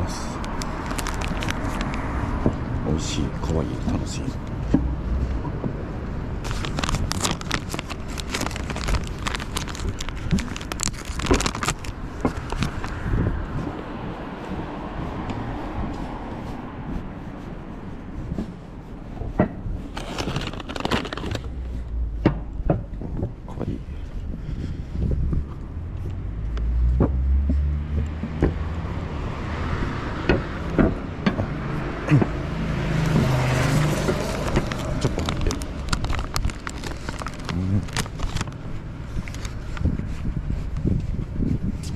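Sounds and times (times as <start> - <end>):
car passing on road: 0.0 - 10.9, 11.8 - 20.3, 24.0 - 41.0
low background rumble: 0.0 - 29.4
food wrapper crinkling: 0.4 - 2.1, 6.4 - 13.0, 19.9 - 21.6, 33.4 - 38.6.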